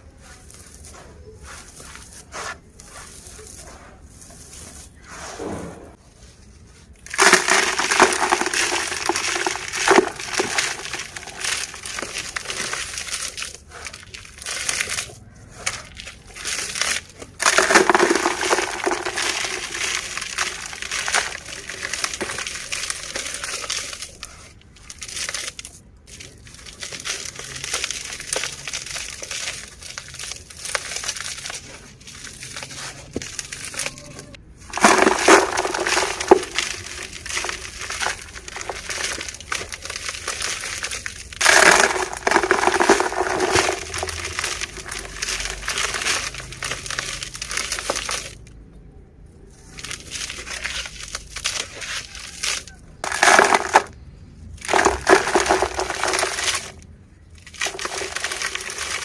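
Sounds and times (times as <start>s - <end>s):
stony dirt crunching: 0.0s - 59.0s.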